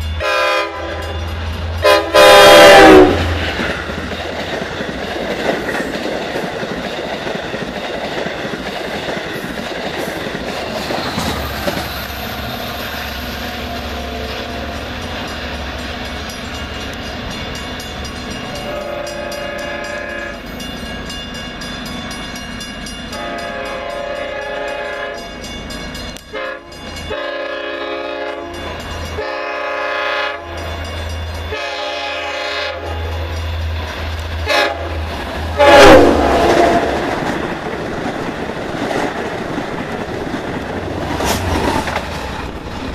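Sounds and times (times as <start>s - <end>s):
train wheels rumbling on rails: 0.0s - 42.9s
train air horn blasts: 0.2s - 1.2s, 1.8s - 3.7s, 18.5s - 20.5s, 23.2s - 25.3s, 26.3s - 30.7s, 31.5s - 33.2s, 34.4s - 37.0s.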